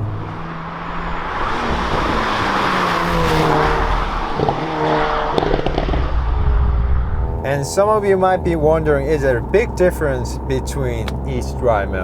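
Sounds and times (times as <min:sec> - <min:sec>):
car engine accelerating hard: 0:00.0 - 0:12.0
exhaust pops: 0:05.3 - 0:12.0.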